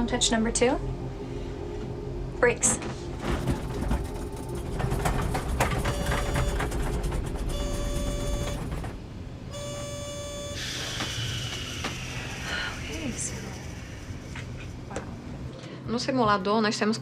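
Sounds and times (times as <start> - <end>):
low rumble of engines: 0.0 - 17.0
cockpit warning tone: 5.8 - 10.9.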